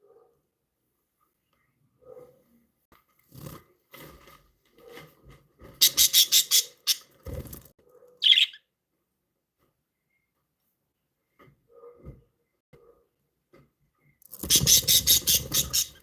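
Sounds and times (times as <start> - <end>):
budgerigars chirping: 5.8 - 7.0, 8.2 - 8.6, 14.5 - 16.0.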